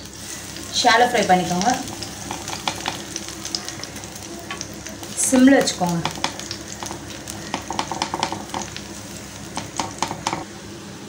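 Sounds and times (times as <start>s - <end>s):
food sizzling in oil: 0.0s - 10.7s
crackles and pops: 1.4s - 10.4s
hand patting food: 5.6s - 8.9s, 9.5s - 10.4s.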